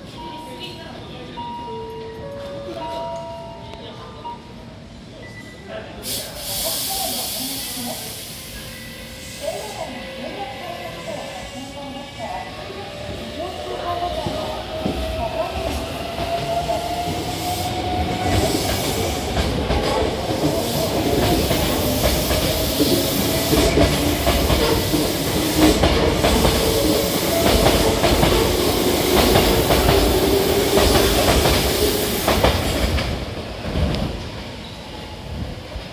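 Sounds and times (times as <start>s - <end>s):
train rumble: 9.3s - 34.6s.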